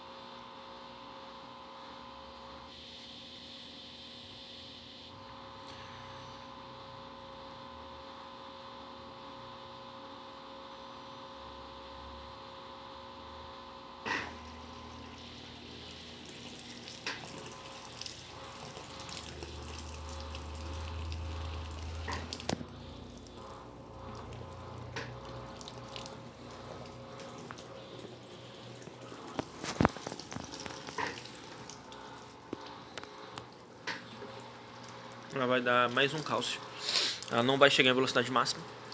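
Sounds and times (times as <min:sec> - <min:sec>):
washing machine motor hum: 0:05.1 - 0:38.9
water rushing and draining: 0:14.6 - 0:32.5.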